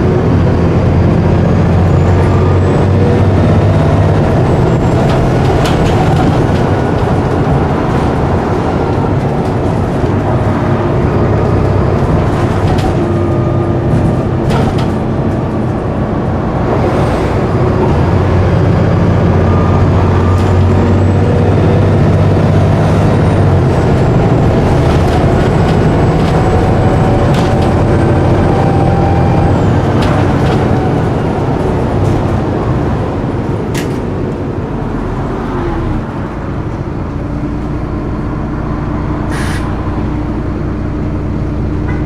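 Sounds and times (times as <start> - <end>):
bus diesel engine droning: 0.0 - 42.0
knocks and rattles: 4.4 - 10.5.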